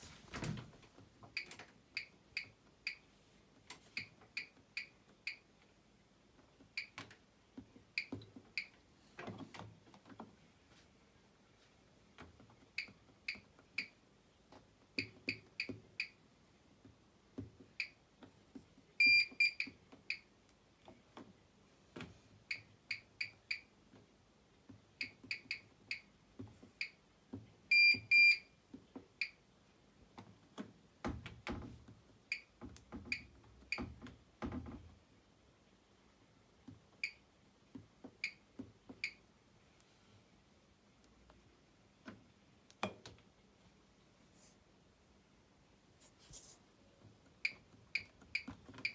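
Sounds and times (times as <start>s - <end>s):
washing machine panel beeps: 1.4s - 3.1s, 4.0s - 5.5s, 6.7s - 7.0s, 7.9s - 8.8s, 15.0s - 16.2s, 17.8s - 18.0s, 19.0s - 20.3s, 25.0s - 26.1s, 27.7s - 28.5s, 32.3s - 32.5s, 33.1s - 34.0s, 37.0s - 37.2s, 38.2s - 38.4s, 39.0s - 39.2s, 47.4s - 48.9s.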